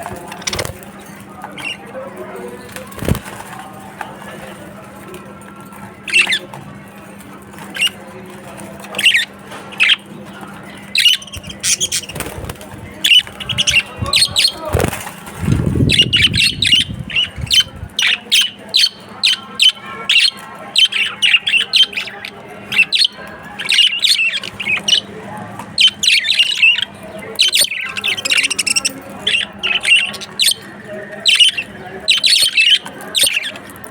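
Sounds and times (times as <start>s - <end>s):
budgerigars chirping and squawking: 0.0s - 2.0s, 2.7s - 3.6s, 5.7s - 33.9s
low rumbling noise: 12.6s - 18.0s.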